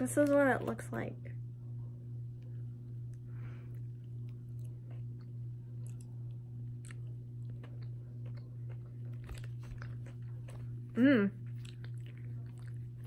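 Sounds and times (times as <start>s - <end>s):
low steady hum: 0.0s - 13.0s
person chewing gummy: 3.8s - 13.0s.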